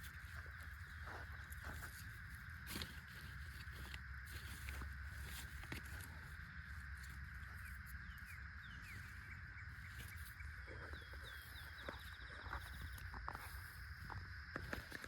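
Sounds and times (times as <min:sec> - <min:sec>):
outdoor hum and rumble: 0:00.0 - 0:15.0
birds chirping: 0:05.7 - 0:15.0
bird trill: 0:07.4 - 0:13.2.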